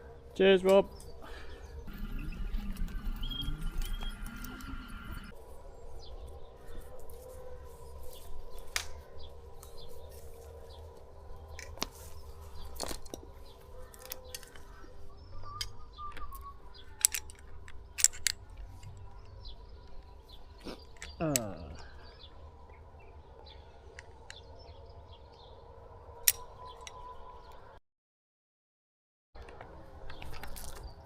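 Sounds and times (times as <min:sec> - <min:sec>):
bird chirping: 0:00.0 - 0:27.8
clicks and knocks of rigging hardware: 0:12.6 - 0:14.8, 0:15.6 - 0:21.5.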